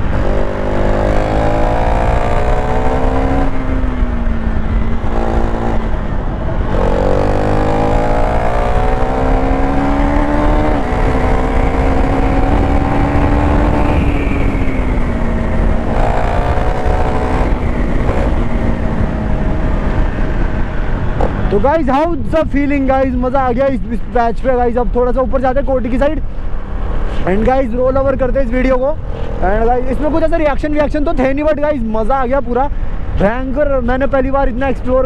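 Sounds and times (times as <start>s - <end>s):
motorcycle engine shifting gears: 0.0s - 21.6s
wind noise: 0.0s - 35.0s.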